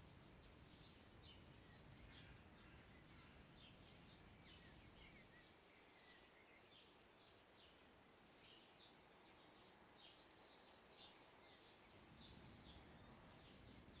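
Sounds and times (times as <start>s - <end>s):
small birds chirping: 8.4s - 14.0s.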